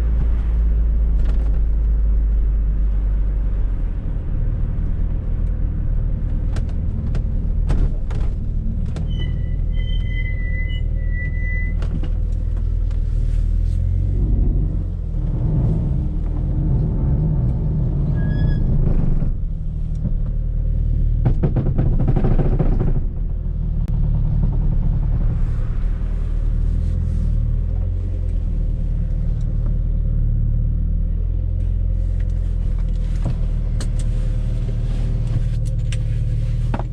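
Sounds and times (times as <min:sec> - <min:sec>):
car engine from inside cabin: 0:10.6 - 0:36.9
interior clicks and knocks: 0:18.6 - 0:25.4.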